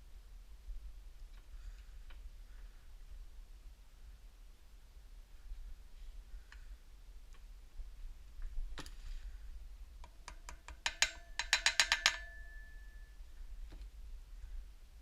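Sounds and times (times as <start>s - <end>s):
hammer tapping metal: 10.0s - 13.0s.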